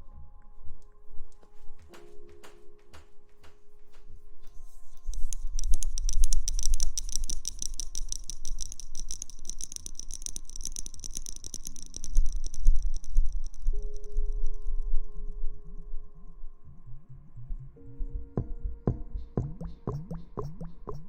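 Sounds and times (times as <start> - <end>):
crackling scratching rustles: 3.5 - 14.2.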